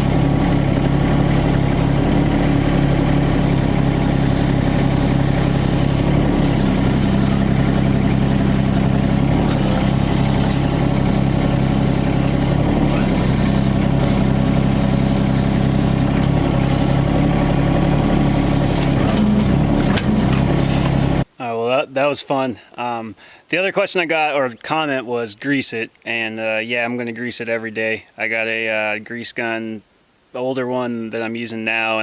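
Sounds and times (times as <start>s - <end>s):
mini excavator diesel engine: 0.0s - 21.3s.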